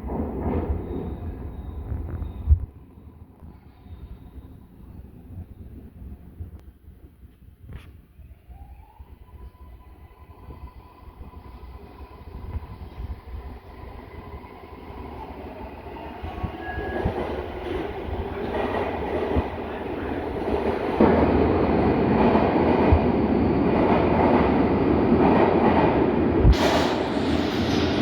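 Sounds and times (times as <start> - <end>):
train wheels rumbling on rails: 0.0 - 2.8, 10.2 - 28.0.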